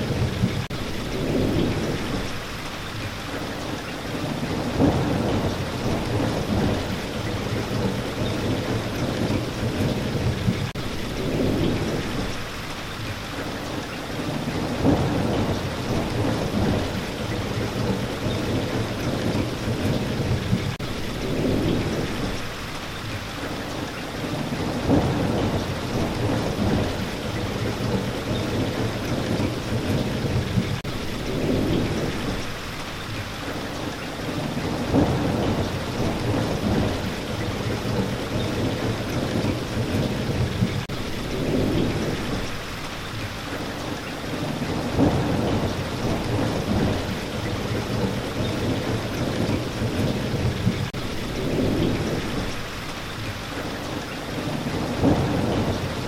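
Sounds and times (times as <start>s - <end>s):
low rolls of thunder: 0.0s - 2.5s, 3.2s - 12.5s, 13.4s - 22.6s, 23.4s - 56.0s
steady rain falling: 0.0s - 56.0s.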